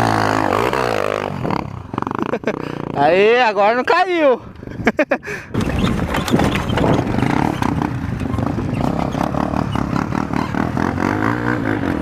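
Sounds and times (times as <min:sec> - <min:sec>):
motorcycle engine under throttle: 0:00.0 - 0:03.2, 0:05.5 - 0:12.0.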